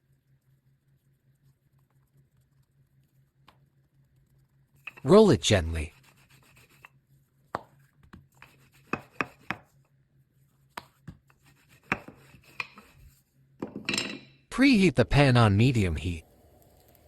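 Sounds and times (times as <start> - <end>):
rolling pin knocking and rubbing: 7.6 - 9.8, 10.7 - 14.2.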